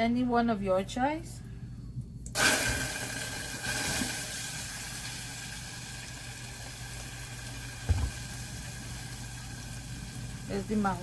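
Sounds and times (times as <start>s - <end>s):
sauce sizzling in a pot: 2.4s - 11.0s
short thud: 7.9s - 8.2s.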